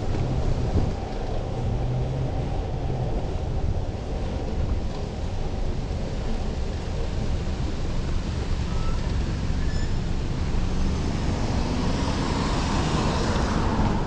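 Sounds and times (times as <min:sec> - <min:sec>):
wind buffeting microphone: 0:00.0 - 0:09.4
broad rushing noise: 0:00.0 - 0:14.0
road and traffic noise: 0:00.0 - 0:14.0.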